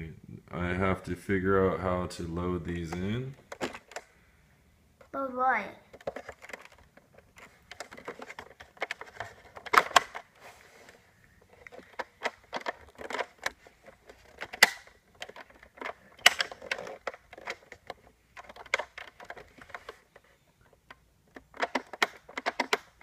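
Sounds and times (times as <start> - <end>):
sharp plastic snaps: 11.6 - 20.0, 20.6 - 23.0
plastic toy blaster clicks and clatters: 11.7 - 20.0, 21.3 - 23.0.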